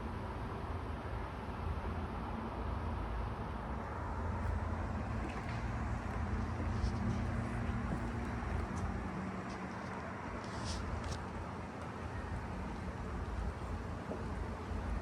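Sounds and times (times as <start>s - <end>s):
distant engine rumble: 3.9s - 15.0s.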